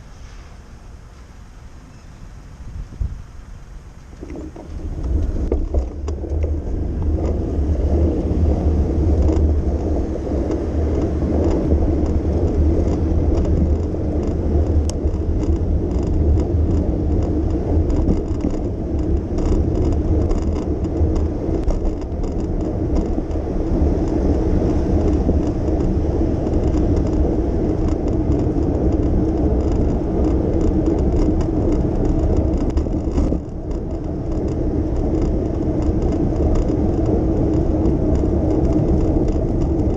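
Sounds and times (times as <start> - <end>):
city street traffic rumble: 0.0 - 39.9
faint ticks: 8.6 - 39.9.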